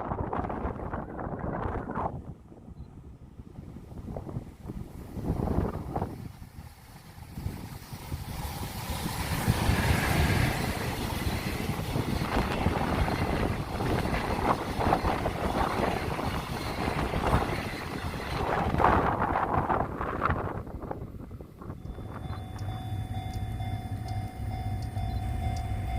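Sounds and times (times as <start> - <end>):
freight train passing at speed: 0.0 - 25.9
wheels clicking over rail joints: 5.2 - 20.4.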